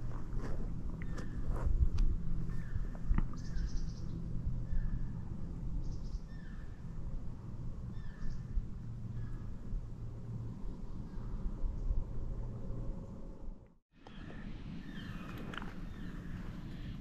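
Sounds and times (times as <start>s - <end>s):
steady low rumble: 0.0s - 17.0s
songbirds chirping: 2.4s - 7.0s, 7.7s - 9.7s, 14.0s - 17.0s.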